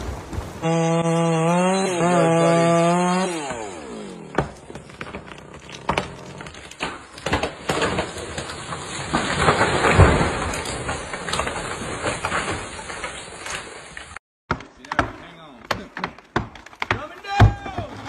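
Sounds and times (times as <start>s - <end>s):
tree crashing down: 0.0s - 14.2s
tree trunk cracking and splintering: 0.0s - 18.0s
chainsaw engine winding down: 0.6s - 4.3s.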